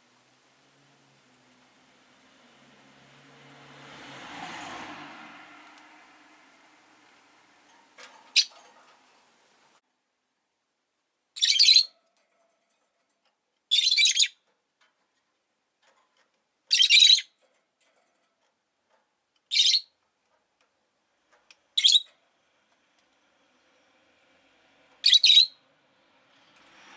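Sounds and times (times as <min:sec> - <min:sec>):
lovebird shrill calls: 0:11.4 - 0:11.9, 0:13.7 - 0:14.4, 0:16.7 - 0:17.3, 0:19.5 - 0:19.9, 0:21.8 - 0:22.1, 0:25.0 - 0:25.6.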